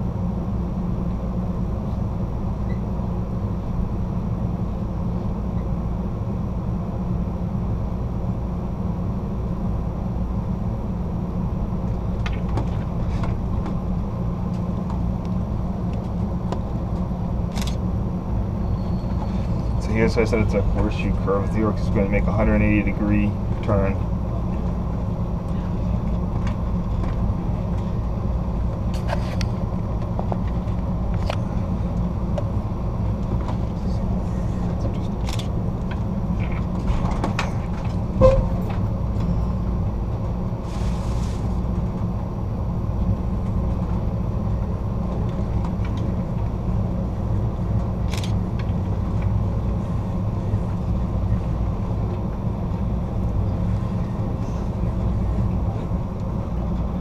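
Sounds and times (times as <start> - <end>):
train rumbling on rails: 0.0 - 57.0
brief hiss: 40.6 - 41.6.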